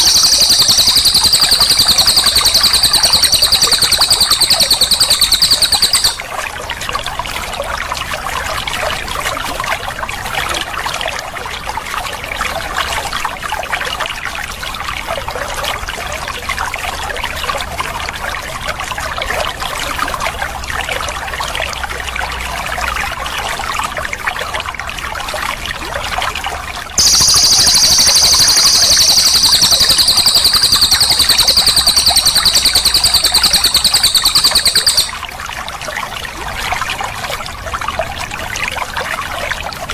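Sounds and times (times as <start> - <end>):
bird trilling song: 0.0 - 6.2, 27.0 - 35.2.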